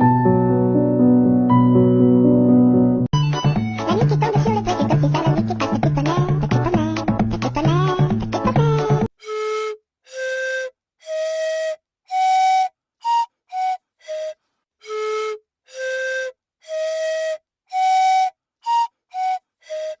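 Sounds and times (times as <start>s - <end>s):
breathy flute playing a tune: 9.1s - 20.0s.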